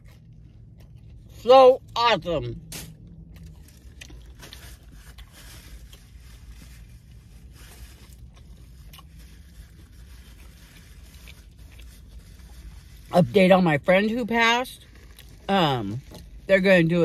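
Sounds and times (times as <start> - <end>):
quiet chewing: 0.0 - 1.4, 3.0 - 6.7, 7.8 - 12.9
low hum inside a car: 0.0 - 17.0.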